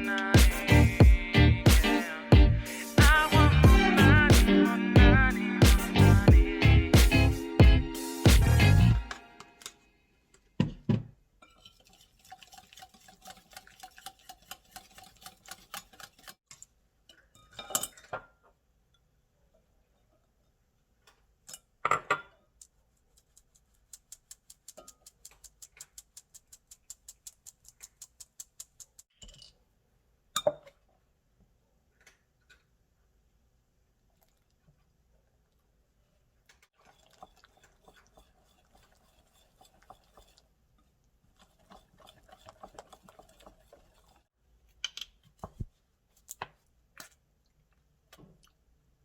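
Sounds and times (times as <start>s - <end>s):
utensil tapping against bowl: 23.3s - 29.0s.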